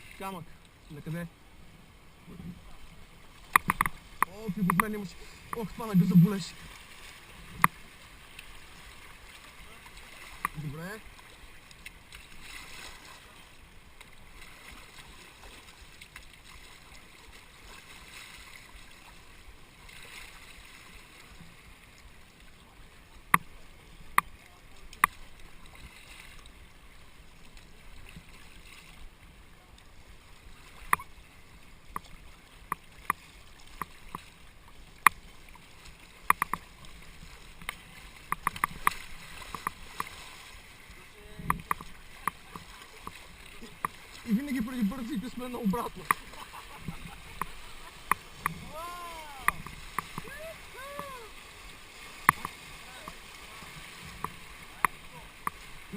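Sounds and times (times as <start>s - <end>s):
rushing river water: 0.0s - 55.9s
sharp knocks and clicks: 3.5s - 5.6s, 36.2s - 36.6s, 37.6s - 40.1s, 41.4s - 43.2s.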